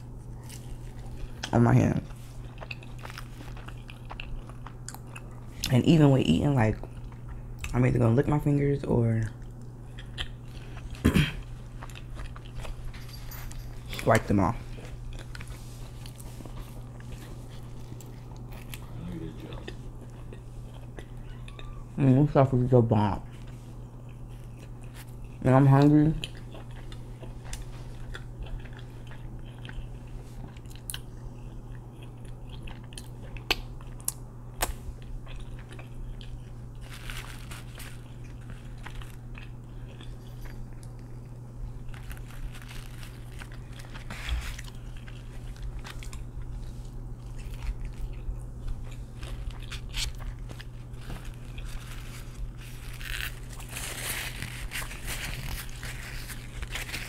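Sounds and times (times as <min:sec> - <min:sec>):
crunchy chewing and biting: 0:00.0 - 0:05.7, 0:09.3 - 0:13.0, 0:14.6 - 0:21.8, 0:23.3 - 0:57.0
paper napkin rustling: 0:36.8 - 0:38.1, 0:41.8 - 0:45.5, 0:49.1 - 0:57.0.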